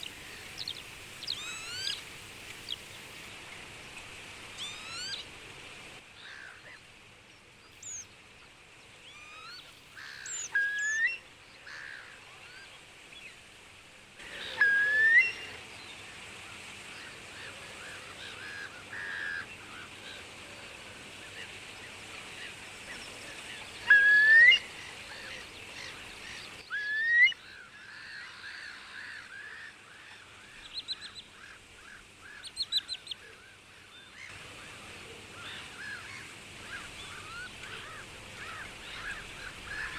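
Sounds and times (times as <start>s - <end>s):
birds calling: 0.0s - 3.3s, 7.8s - 8.0s, 9.5s - 11.1s
steady outdoor hiss: 0.0s - 39.9s.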